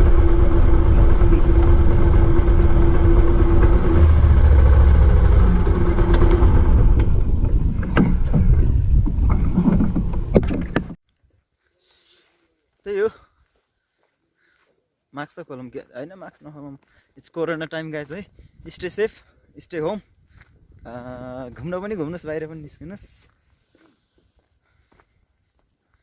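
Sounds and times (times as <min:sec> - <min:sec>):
motorcycle engine running: 0:00.0 - 0:11.0
wind rush on microphone: 0:00.0 - 0:11.0, 0:18.2 - 0:19.1.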